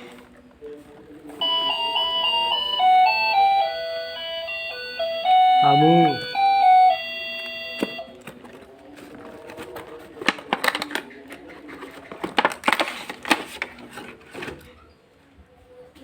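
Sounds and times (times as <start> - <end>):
background music: 1.4 - 8.1
packaging crinkling: 8.2 - 14.5.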